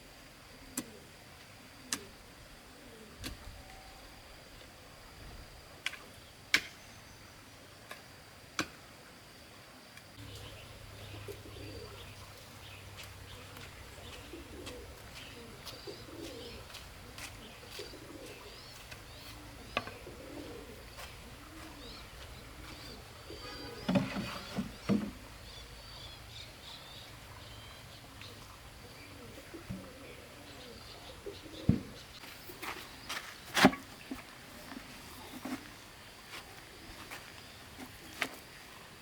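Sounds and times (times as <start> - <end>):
birds cooing: 0.6 - 4.4, 10.2 - 33.2.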